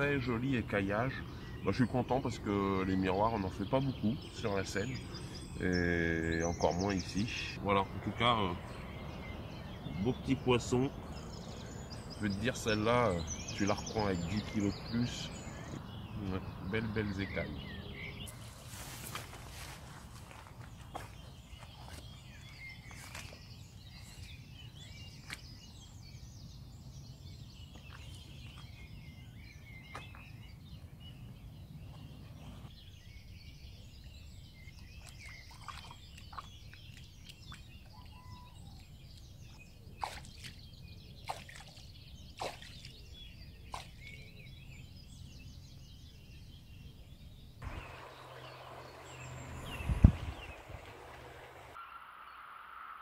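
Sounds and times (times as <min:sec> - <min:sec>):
birds chirping and singing: 0:00.0 - 0:51.8
low steady hum: 0:47.6 - 0:52.8.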